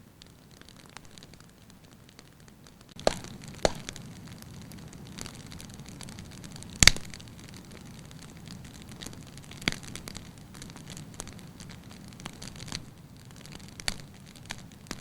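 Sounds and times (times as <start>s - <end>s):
firewood crackling: 0.0s - 15.0s
low steady flame noise: 0.0s - 15.0s
sharp wood pops: 3.0s - 4.1s.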